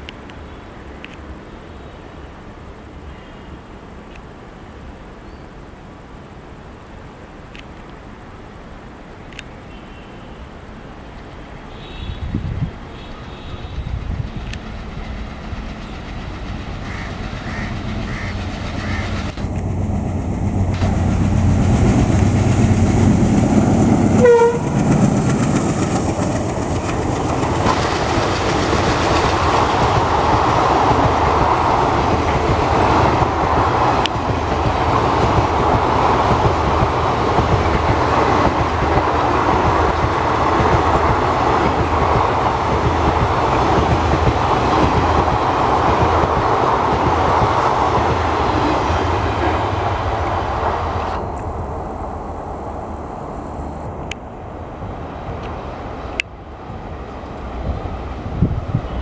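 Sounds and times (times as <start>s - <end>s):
diesel locomotive engine: 0.0s - 59.0s
wheel-on-rail noise: 2.1s - 59.0s
train horn toot: 11.7s - 14.2s, 24.1s - 24.9s
clickety-clack over rail joints: 13.1s - 51.5s.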